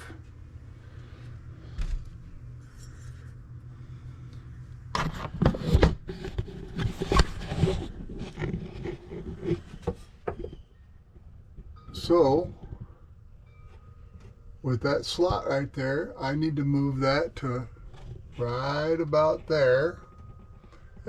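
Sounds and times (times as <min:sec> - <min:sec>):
low steady hum: 0:00.0 - 0:21.0
tools scraping and knocking on wood: 0:05.0 - 0:10.6.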